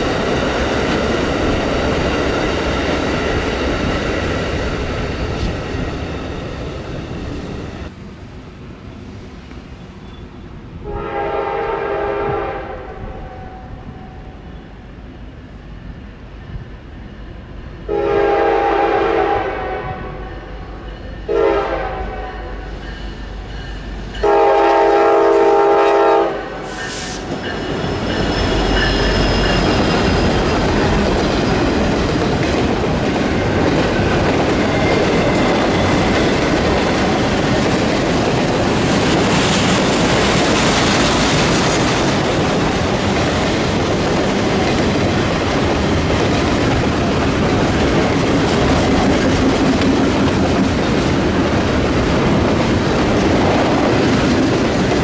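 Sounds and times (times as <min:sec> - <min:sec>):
freight train wheels rumbling: 0:00.0 - 0:55.0
locomotive air horn blast: 0:10.8 - 0:14.2, 0:17.9 - 0:20.3, 0:21.3 - 0:22.6, 0:24.2 - 0:27.3
clickety-clack over rail joints: 0:26.7 - 0:55.0.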